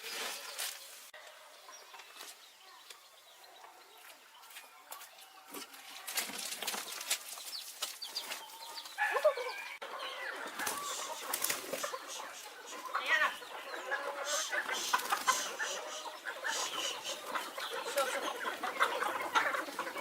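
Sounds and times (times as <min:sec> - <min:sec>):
chickens clucking: 0:00.0 - 0:20.0
loud chicken call: 0:08.5 - 0:19.4.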